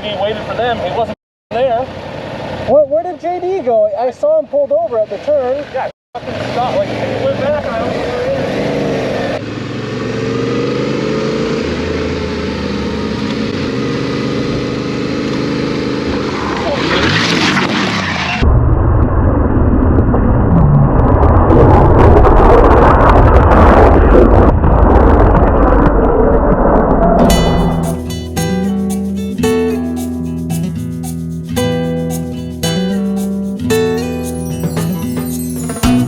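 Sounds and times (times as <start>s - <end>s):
motorcycle engine running: 9.2s - 16.3s
wind rumble on microphone: 18.4s - 27.4s.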